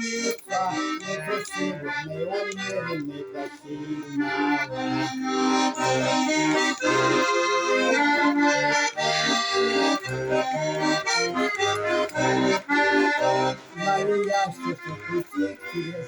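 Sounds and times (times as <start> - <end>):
accordion melody with bass chords: 0.0 - 16.0
person singing: 0.0 - 16.0.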